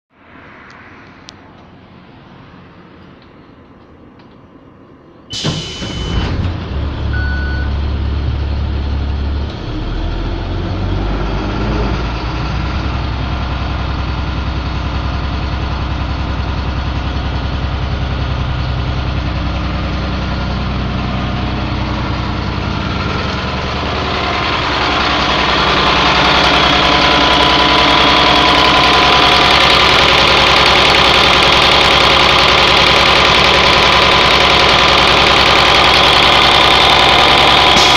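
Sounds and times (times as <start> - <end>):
diesel engine starting and idling: 2.7 - 37.9
short beeps: 7.1 - 7.9.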